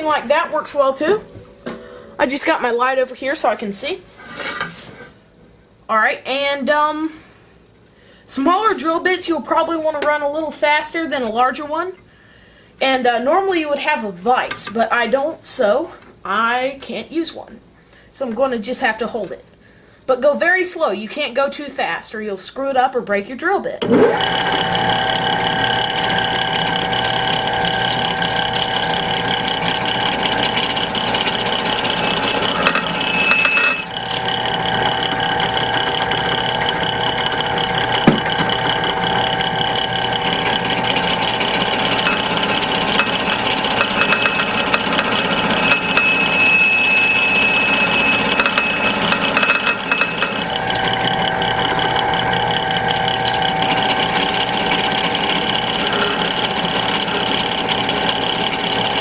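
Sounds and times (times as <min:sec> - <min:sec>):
drill press motor running: 0:23.8 - 0:59.0
drill bit cutting steel: 0:24.1 - 0:59.0
thin high squeal: 0:45.3 - 0:49.1.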